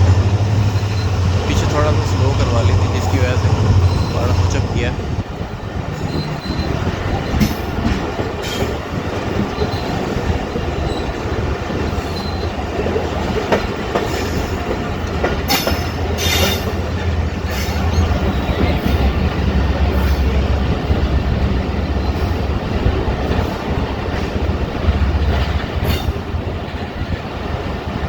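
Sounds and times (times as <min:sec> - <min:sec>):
train low rumble: 0:00.0 - 0:28.0.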